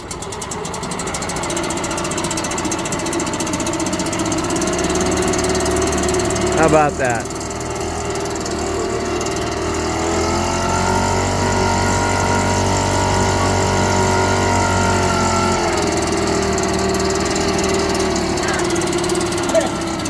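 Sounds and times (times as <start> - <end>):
two-stroke outboard motor running: 0.0 - 20.0.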